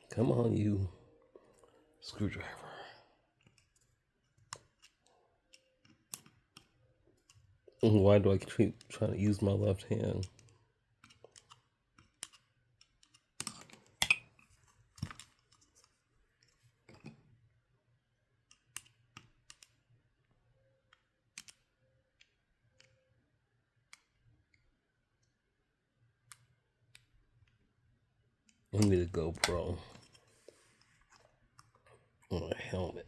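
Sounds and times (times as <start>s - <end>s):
small parts clicking and tapping: 3.4s - 7.8s, 9.9s - 17.3s, 18.4s - 25.4s, 26.2s - 27.6s.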